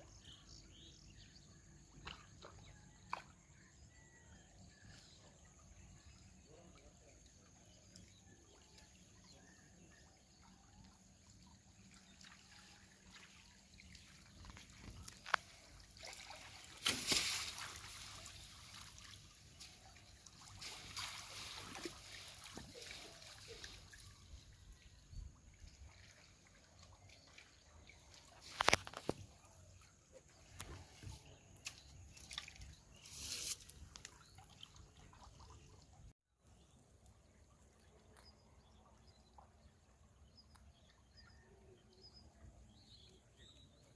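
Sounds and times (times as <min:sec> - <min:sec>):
river water trickling: 0:00.0 - 0:43.9
water splashing: 0:11.4 - 0:36.0.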